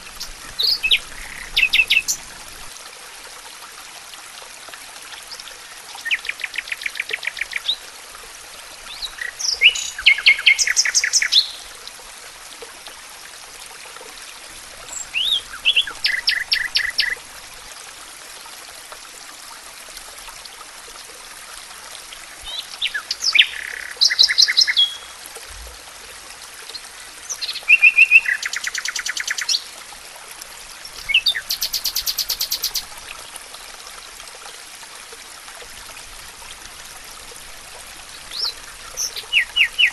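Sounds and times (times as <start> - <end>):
songbird singing: 0.0 - 2.4, 8.9 - 11.6, 14.9 - 17.2, 22.4 - 25.2, 27.3 - 29.6, 30.8 - 32.9, 38.3 - 39.9
running water: 0.0 - 39.9.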